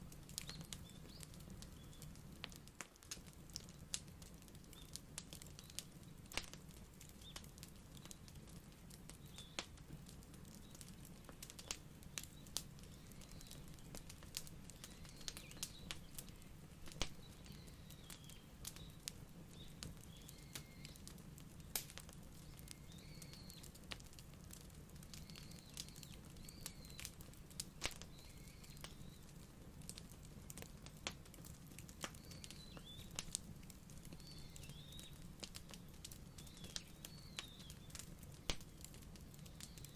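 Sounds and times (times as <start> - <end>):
wood fire crackling and popping: 0.0 - 39.9
faint bird chirps: 0.3 - 2.2, 9.1 - 9.8, 10.4 - 23.8, 24.5 - 29.4, 32.1 - 39.9.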